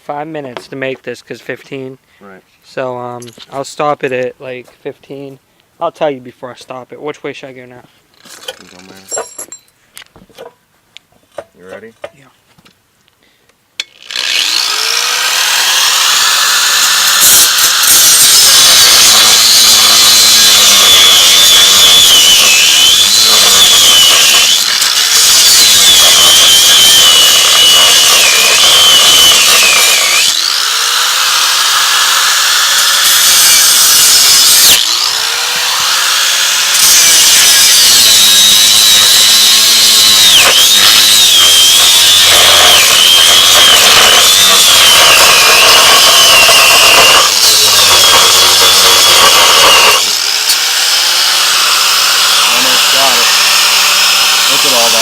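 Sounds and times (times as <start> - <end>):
angle grinder cutting steel: 13.8 - 55.0.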